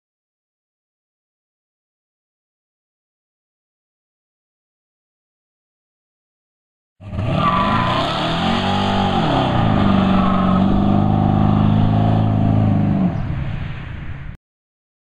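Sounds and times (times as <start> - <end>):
car engine revving: 7.0 - 13.6.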